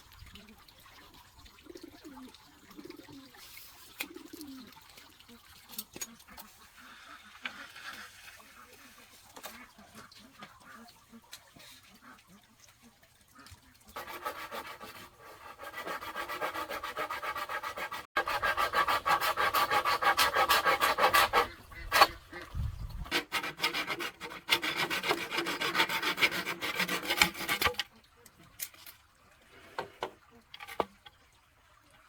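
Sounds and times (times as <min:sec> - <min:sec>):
hand tool rasping wood: 0:14.0 - 0:22.2, 0:23.0 - 0:27.8.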